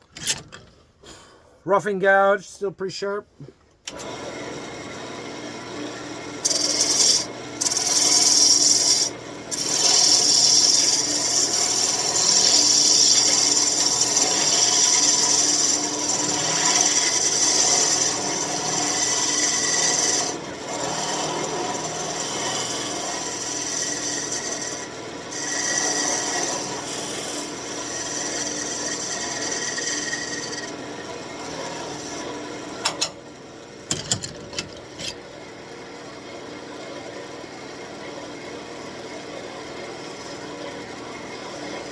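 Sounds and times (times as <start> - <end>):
lathe running: 5.0 - 32.8
gouge scraping wood on lathe: 6.4 - 30.8, 31.4 - 32.4.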